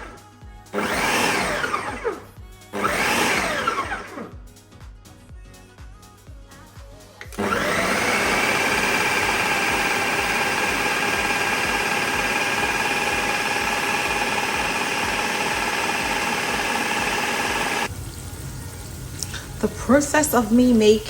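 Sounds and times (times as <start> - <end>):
blender motor whining: 0.0 - 4.4, 7.2 - 18.2.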